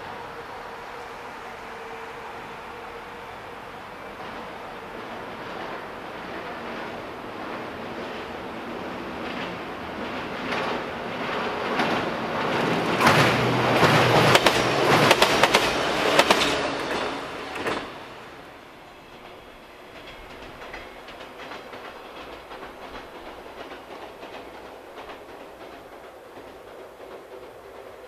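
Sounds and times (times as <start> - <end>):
distant train rumble: 0.0 - 28.0
train wheels clattering on bridge: 5.1 - 18.3, 19.1 - 28.0.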